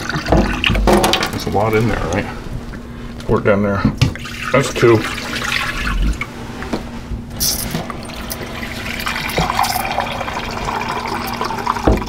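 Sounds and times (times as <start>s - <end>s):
water pouring and splashing: 4.2s - 6.3s, 7.4s - 12.0s.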